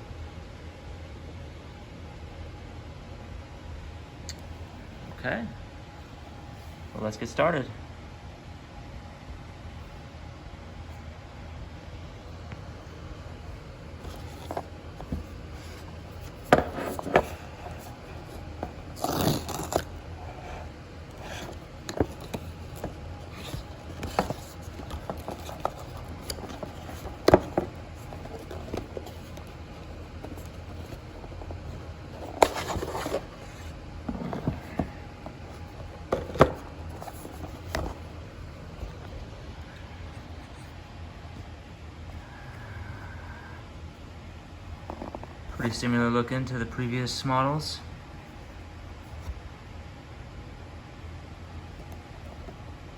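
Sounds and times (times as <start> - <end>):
packaging scraping: 14.0 - 39.0
clicks and taps of box handling: 21.1 - 38.0.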